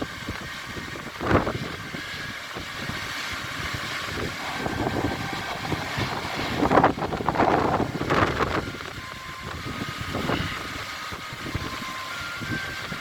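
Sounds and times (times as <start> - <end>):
wind rumble on microphone: 0.0 - 13.0
waterfall rushing: 3.6 - 9.0.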